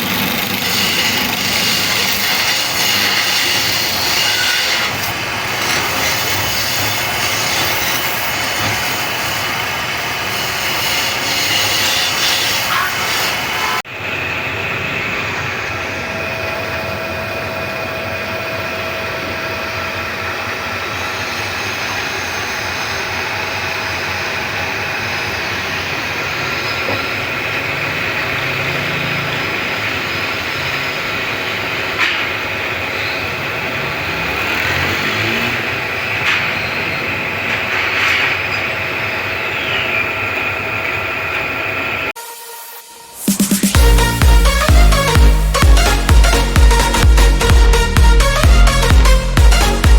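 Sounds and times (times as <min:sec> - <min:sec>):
lathe whirring with high whine: 0:00.0 - 0:42.2.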